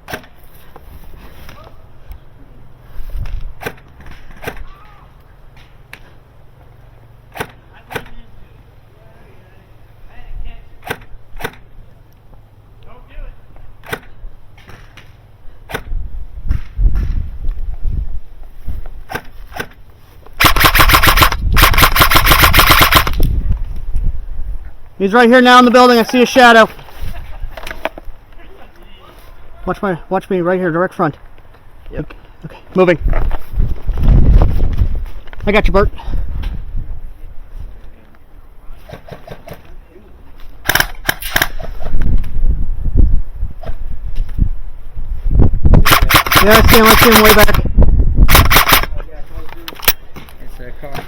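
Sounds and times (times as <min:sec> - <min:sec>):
airsoft gun shots: 0:10.8 - 0:11.6, 0:20.4 - 0:23.2, 0:40.6 - 0:41.9, 0:45.8 - 0:47.6, 0:48.3 - 0:49.0.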